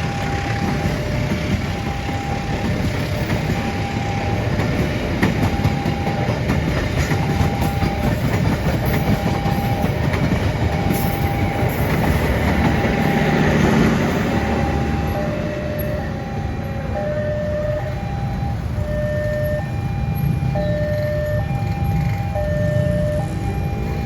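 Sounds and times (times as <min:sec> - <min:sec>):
train wheels clattering: 0:00.0 - 0:15.9
train passing at speed: 0:00.0 - 0:24.0
two-note crossing warning signal: 0:05.3 - 0:24.0.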